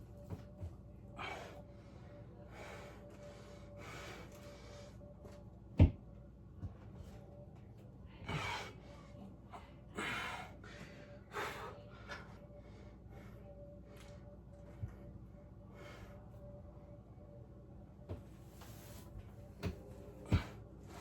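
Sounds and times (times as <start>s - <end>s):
person breathing heavily: 1.1s - 5.0s, 8.2s - 13.6s.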